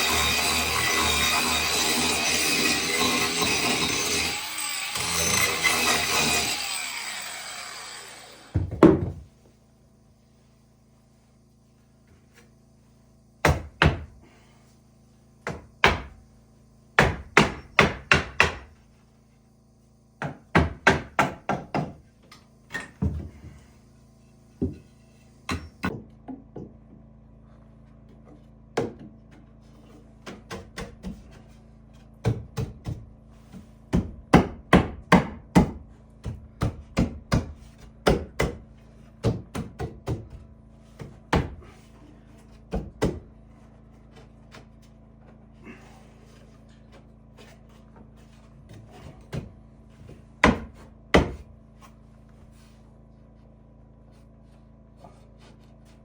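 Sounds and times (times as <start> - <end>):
hammer striking wood: 8.5 - 9.2, 13.4 - 14.1, 15.4 - 16.2, 17.0 - 18.7, 20.2 - 22.0, 33.9 - 38.6, 39.2 - 40.4, 50.4 - 51.4.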